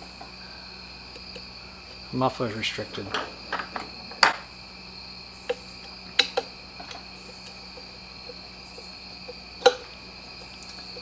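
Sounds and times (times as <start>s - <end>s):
light clicks and knocks: 2.4s - 4.5s.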